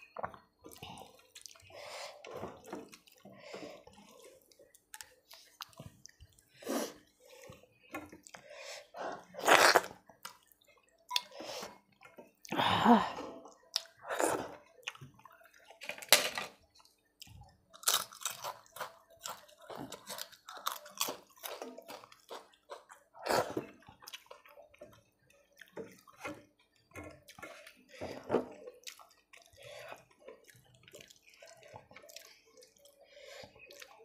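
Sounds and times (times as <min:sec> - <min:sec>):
chewing crunchy papad: 0:17.7 - 0:24.7.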